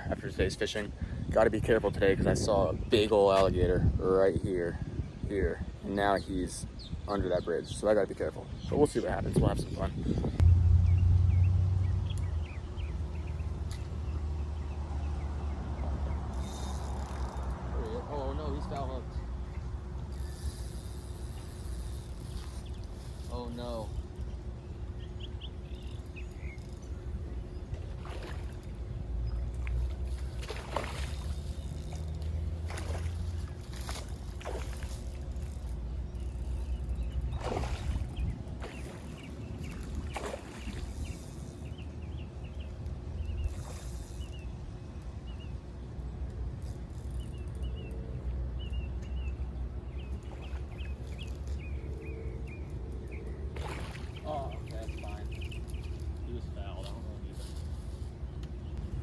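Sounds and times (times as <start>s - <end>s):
wind buffeting microphone: 0.0s - 16.8s, 37.0s - 45.4s
bird chirping: 10.4s - 17.4s, 18.1s - 27.9s, 47.1s - 57.5s
fish splashing at water surface: 27.9s - 28.7s, 30.0s - 35.2s, 37.4s - 41.5s, 53.4s - 56.2s.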